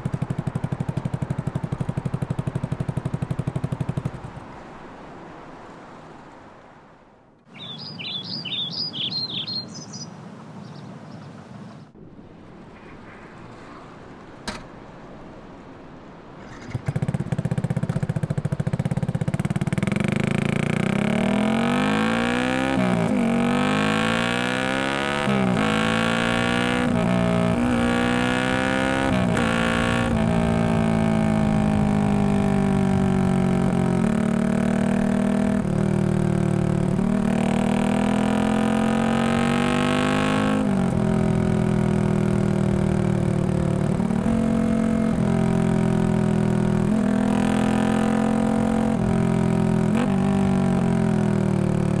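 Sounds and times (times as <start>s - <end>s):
motorcycle engine accelerating: 0.0s - 5.0s, 16.3s - 52.0s.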